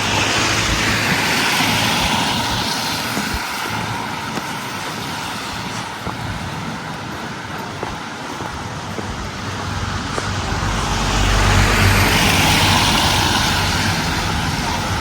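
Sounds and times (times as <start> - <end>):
motor vehicle passing: 8.8 - 15.0.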